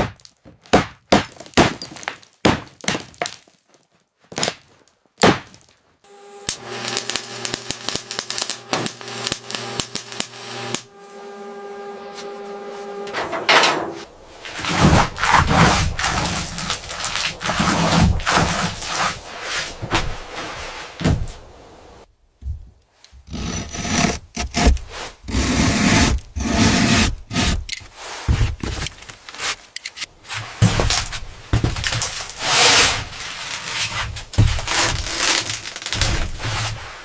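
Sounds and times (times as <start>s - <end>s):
rubbing and scraping on wood: 12.0s - 22.0s, 23.1s - 37.0s.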